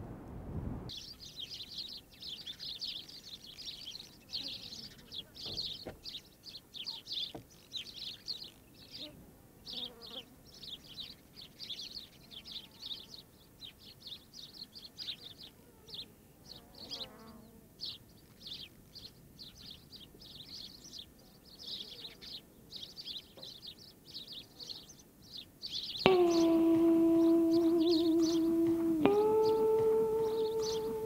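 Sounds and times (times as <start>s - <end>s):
birds chirping: 0.9s - 31.0s
bird warbling call: 26.0s - 31.0s.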